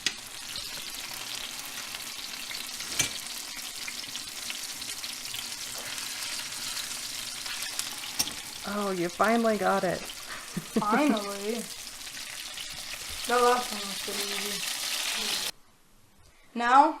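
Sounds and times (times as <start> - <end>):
chicken sizzling in hot oil: 0.0 - 15.6.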